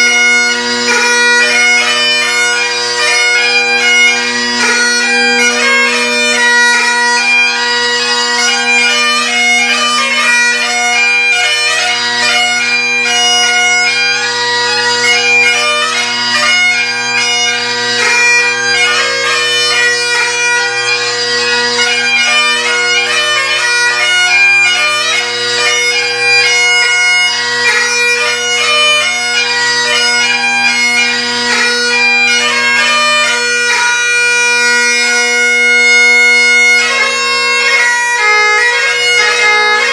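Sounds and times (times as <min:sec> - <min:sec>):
bagpipe chanter melody: 0:00.0 - 0:39.9
bagpipe drones: 0:00.0 - 0:39.9.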